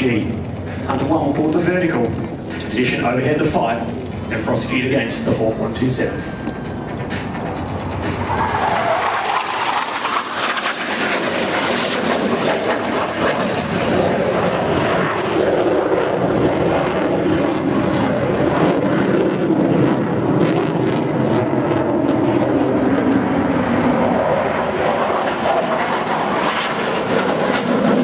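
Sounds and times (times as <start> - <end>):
jet passing with falling pitch: 0.0 - 18.4
jet engine rush: 0.0 - 28.0.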